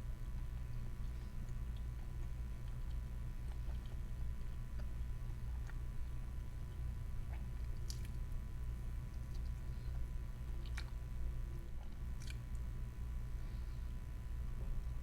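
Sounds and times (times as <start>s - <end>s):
low hum: 0.0s - 15.0s
chewing: 0.2s - 8.2s, 9.1s - 11.0s, 11.8s - 12.7s.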